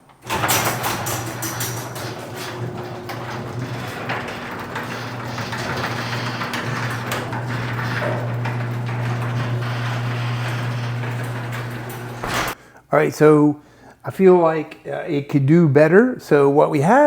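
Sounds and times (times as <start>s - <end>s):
garage door opener motor hum: 0.0s - 12.6s
rollers rattling on metal tracks: 0.1s - 12.6s.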